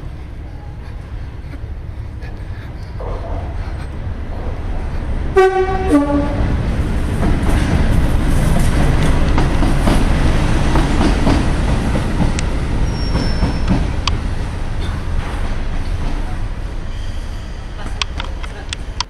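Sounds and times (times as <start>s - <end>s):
train rumbling past: 0.0s - 19.0s
high wheel squeal: 12.8s - 13.9s, 16.8s - 17.8s.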